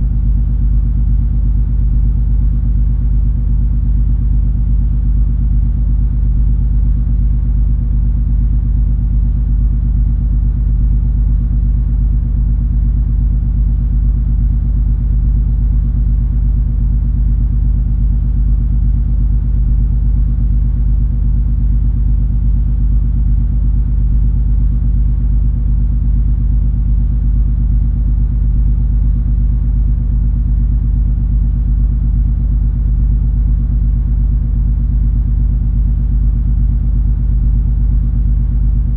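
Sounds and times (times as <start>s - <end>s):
ship engine low rumble: 28.2s - 38.9s.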